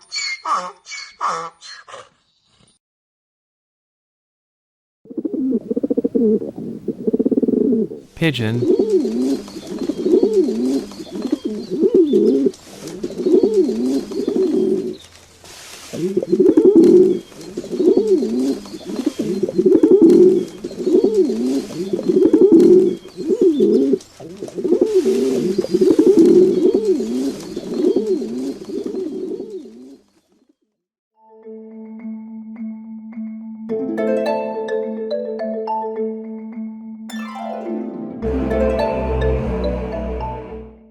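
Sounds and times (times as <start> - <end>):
pigeons cooing: 5.1 - 8.0, 8.8 - 15.0, 16.0 - 30.0.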